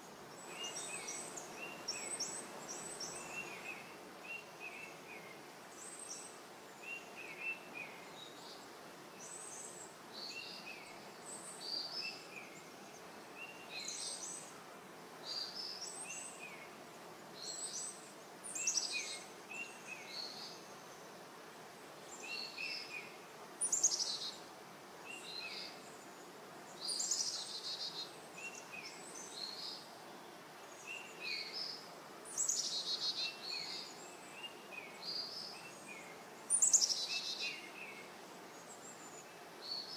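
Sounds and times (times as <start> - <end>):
background hiss: 0.0 - 39.9
songbirds chirping and singing: 30.6 - 39.9.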